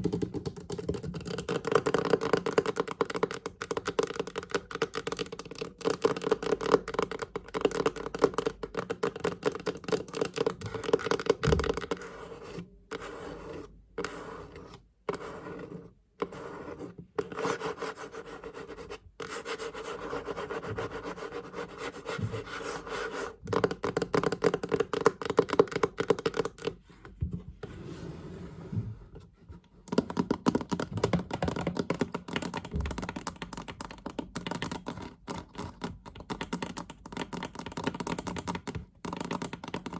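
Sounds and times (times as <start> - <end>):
rubbing and scratching: 0.0 - 39.9
fingers tapping on chest: 23.4 - 26.8.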